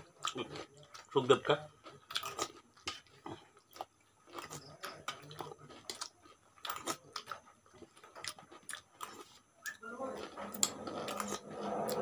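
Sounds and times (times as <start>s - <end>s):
people chewing with mouth clicks: 0.0s - 12.0s.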